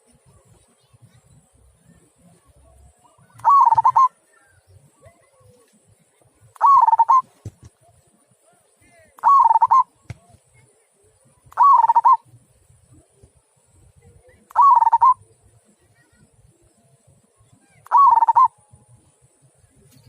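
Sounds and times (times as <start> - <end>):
dove cooing: 3.0 - 4.5, 6.6 - 7.3, 9.2 - 9.9, 11.6 - 12.3, 14.5 - 15.3, 17.8 - 18.6.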